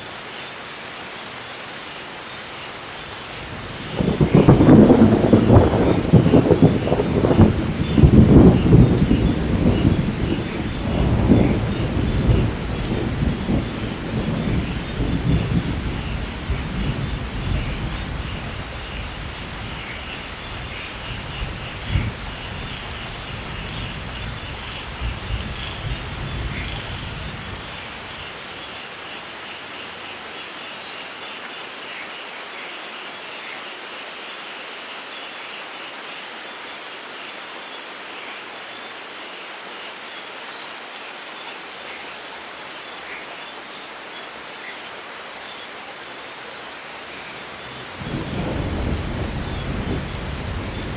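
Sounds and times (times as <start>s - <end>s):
steady rain: 0.0s - 50.9s
thunder rumbling: 3.5s - 28.3s, 47.0s - 50.9s.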